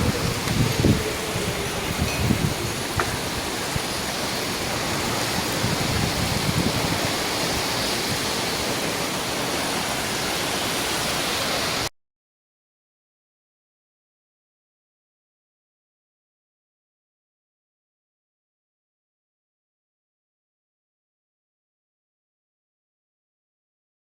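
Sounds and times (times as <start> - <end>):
wind buffeting microphone: 0.0 - 11.2
strong storm wind: 0.0 - 11.9.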